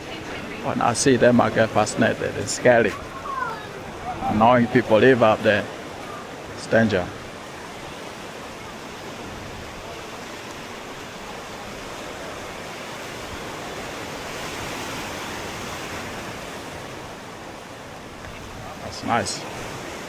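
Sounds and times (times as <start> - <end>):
surf breaking on rocks: 0.0 - 20.0.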